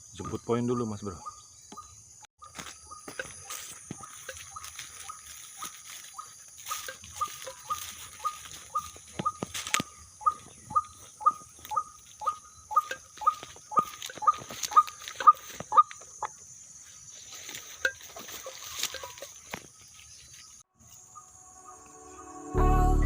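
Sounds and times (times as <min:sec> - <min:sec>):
night insects chirring: 0:00.0 - 0:22.6
footsteps squelching in wet mud: 0:02.4 - 0:16.4, 0:17.2 - 0:20.7.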